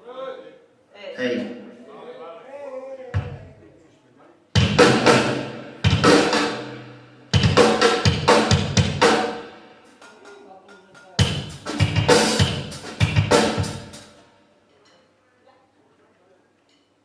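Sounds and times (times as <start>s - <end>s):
drum kit fills: 4.6s - 14.3s.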